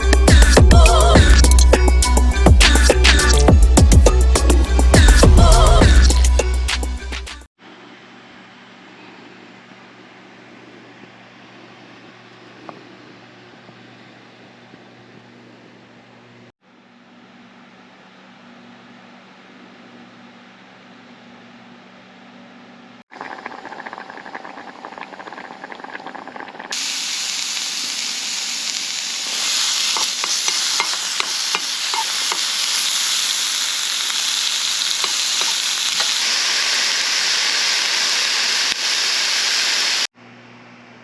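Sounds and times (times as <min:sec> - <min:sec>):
food sizzling with pops: 0:23.2 - 0:40.1.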